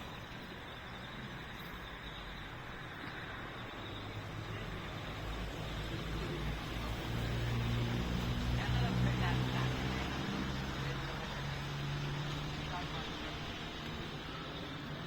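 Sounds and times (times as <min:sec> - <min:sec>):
open-air hiss: 0:00.0 - 0:15.0
vehicle engine humming: 0:00.0 - 0:15.0.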